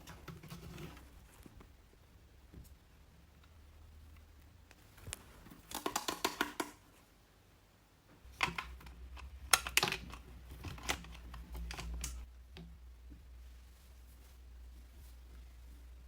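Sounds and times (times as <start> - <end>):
toy packaging clicks and rustles: 5.0 - 6.8, 8.3 - 12.3.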